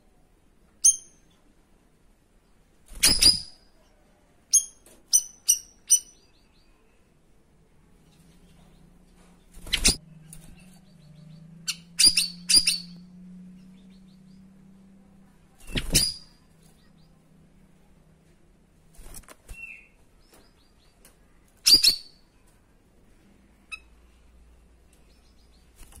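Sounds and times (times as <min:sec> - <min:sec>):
low steady hum: 0:05.7 - 0:21.6.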